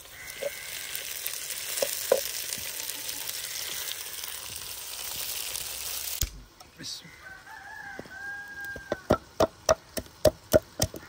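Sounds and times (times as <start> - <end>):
food sizzling in hot oil: 0.0 - 6.4.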